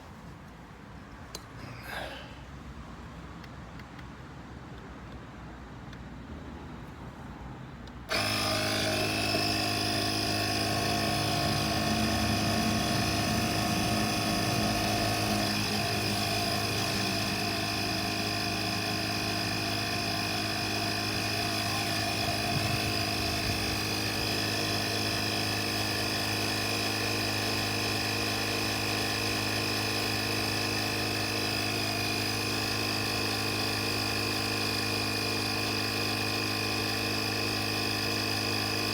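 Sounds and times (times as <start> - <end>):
air compressor buzzing hum: 8.1 - 38.9.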